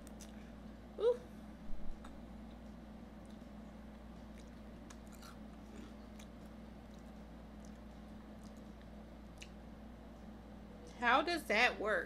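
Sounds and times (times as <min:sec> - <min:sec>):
mouth clicks and crunches: 0:00.0 - 0:00.4, 0:02.0 - 0:09.6
faint chewing of food: 0:00.0 - 0:00.6, 0:01.9 - 0:11.0
steady low hum: 0:00.0 - 0:12.0.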